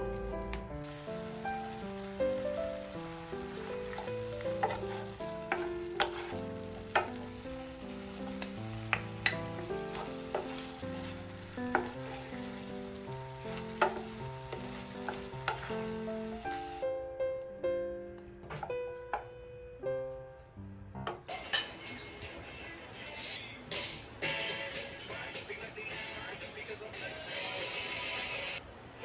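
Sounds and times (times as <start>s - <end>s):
soft background music: 0.0s - 28.6s
meat sizzling in a frying pan: 0.8s - 16.8s
wooden spoon scraping a pan: 3.5s - 7.3s, 8.2s - 12.7s, 13.4s - 16.1s.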